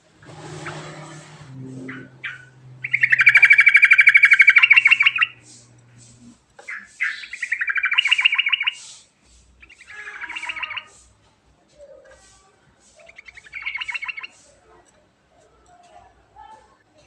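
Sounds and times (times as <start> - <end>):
bird singing rolling trills: 0.5 - 5.9, 6.7 - 9.0, 9.6 - 11.0, 13.0 - 14.5.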